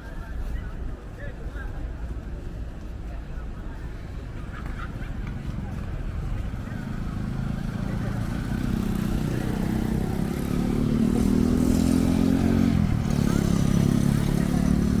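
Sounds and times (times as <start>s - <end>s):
vehicle engine running: 4.5s - 15.0s.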